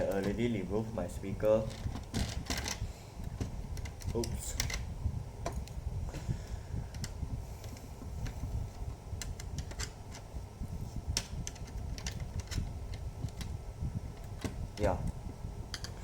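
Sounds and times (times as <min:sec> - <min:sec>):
plastic laptop parts clicking: 0:09.2 - 0:10.3.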